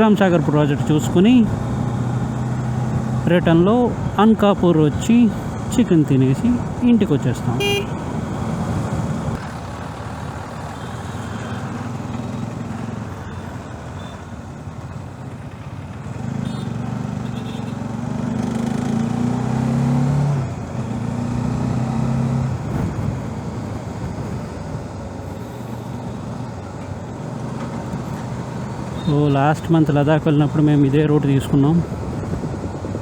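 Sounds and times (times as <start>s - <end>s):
wind and road noise: 0.0s - 33.0s
motorcycle engine accelerating: 15.4s - 24.6s.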